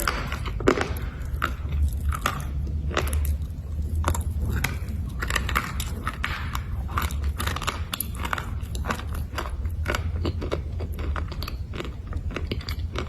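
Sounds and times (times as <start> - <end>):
low steady hum: 0.0 - 13.0
slate crunching when chewed: 0.0 - 13.0.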